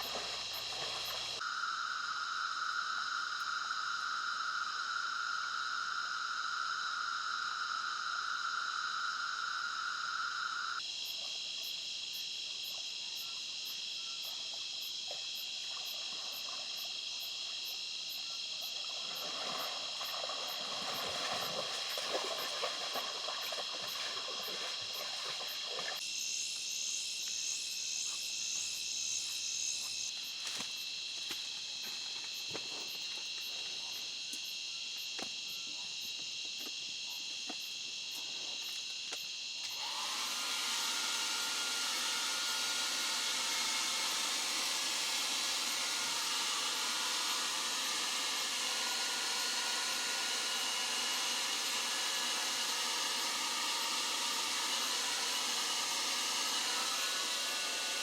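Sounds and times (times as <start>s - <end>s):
water hiss: 0.0s - 1.8s, 14.2s - 30.6s, 39.7s - 58.0s
insect trills: 0.0s - 58.0s.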